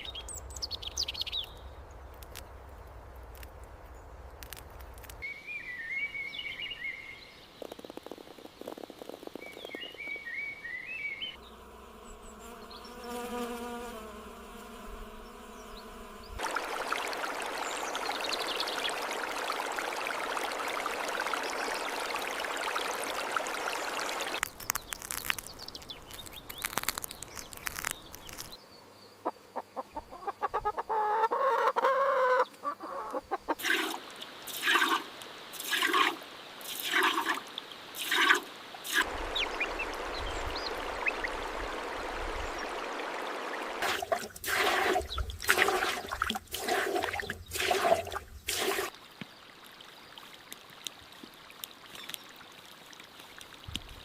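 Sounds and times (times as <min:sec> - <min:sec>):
chickens clucking: 0:29.2 - 0:34.0.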